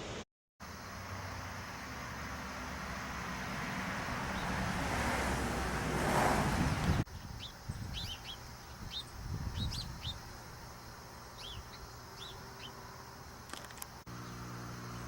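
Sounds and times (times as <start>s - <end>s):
small birds chirping: 6.8s - 15.0s.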